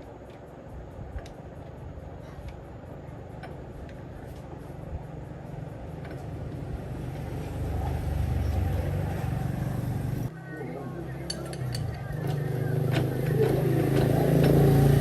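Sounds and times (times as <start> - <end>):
engine running with low rumble: 0.0 - 15.0.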